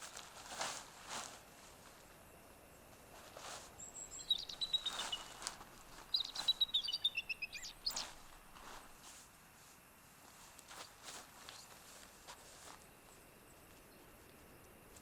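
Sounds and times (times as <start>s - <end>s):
soft slow footsteps: 0.0s - 15.0s
songbird singing high notes: 3.8s - 5.5s, 6.1s - 8.2s.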